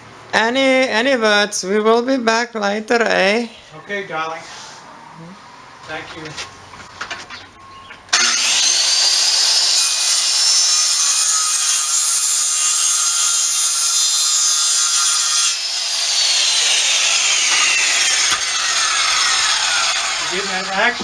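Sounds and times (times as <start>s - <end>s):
electric saw cutting wood: 8.1s - 21.0s.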